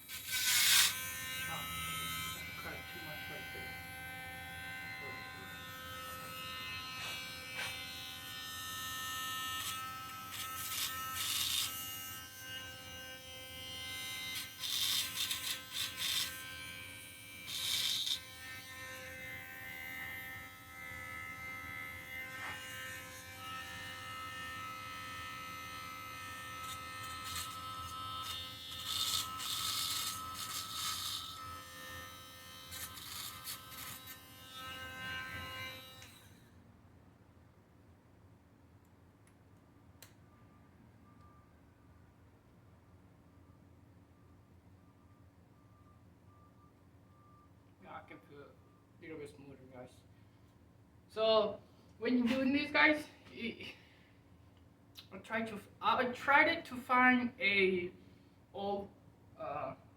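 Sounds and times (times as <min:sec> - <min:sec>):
rotary tool whining: 0:00.0 - 0:36.6.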